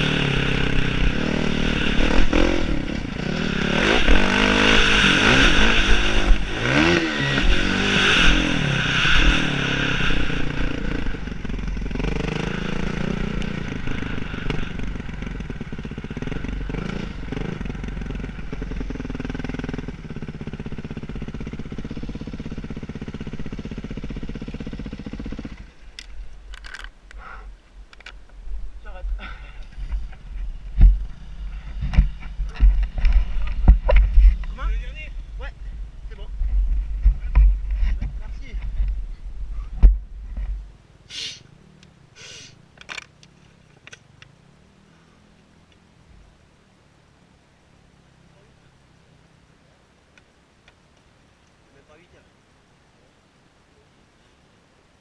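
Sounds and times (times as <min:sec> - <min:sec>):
motocross bike engines revving: 0:00.0 - 0:25.9.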